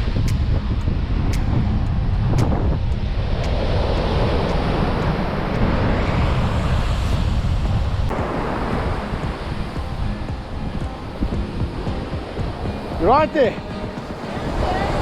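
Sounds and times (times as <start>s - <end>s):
ocean surf washing: 0.0s - 15.0s
wind buffeting microphone: 0.0s - 15.0s.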